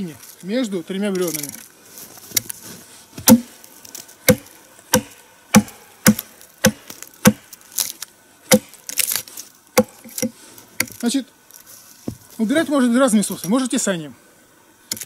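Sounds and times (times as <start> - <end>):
axe chopping into a log: 3.2 - 3.5, 4.3 - 7.9, 8.5 - 9.2, 9.8 - 11.0.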